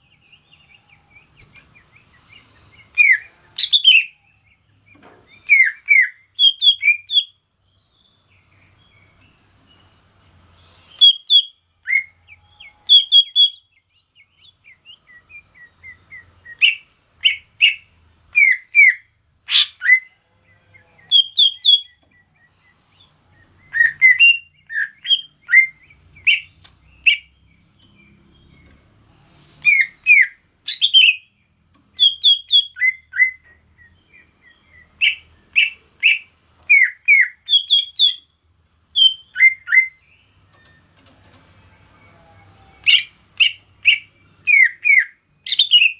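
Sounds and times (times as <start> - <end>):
bird whistling and chirping: 1.2 - 4.2, 4.9 - 7.3, 10.9 - 13.7, 14.4 - 20.1, 21.1 - 22.0, 23.6 - 27.3, 29.6 - 31.3, 32.0 - 38.3, 39.0 - 40.8, 42.7 - 45.9.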